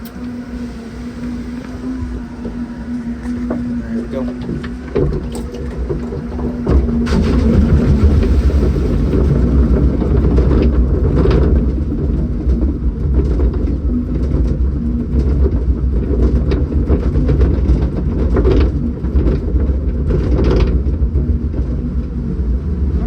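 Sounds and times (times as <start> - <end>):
ride mechanical rumble: 0.0 - 23.0.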